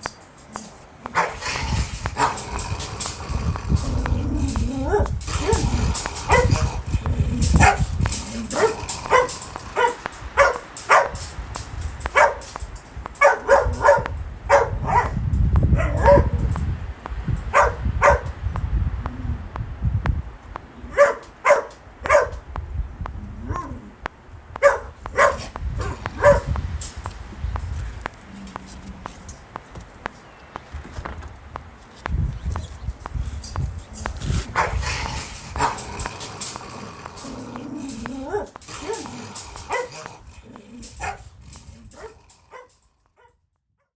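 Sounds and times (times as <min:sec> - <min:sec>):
wind rumble: 0:00.0 - 0:42.8
dog barking: 0:00.6 - 0:11.3, 0:12.0 - 0:16.5, 0:17.5 - 0:18.4, 0:20.8 - 0:22.4, 0:23.4 - 0:23.9, 0:24.6 - 0:26.6, 0:34.4 - 0:40.2, 0:40.8 - 0:43.4.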